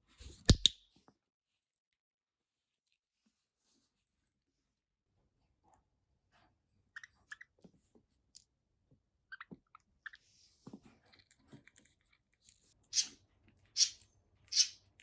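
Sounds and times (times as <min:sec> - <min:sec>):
budgerigar beak clicking: 0:13.8 - 0:14.8.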